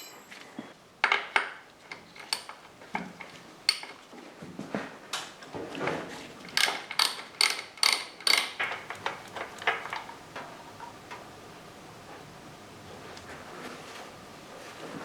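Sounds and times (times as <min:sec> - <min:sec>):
ratchet clicking: 0:06.6 - 0:08.6.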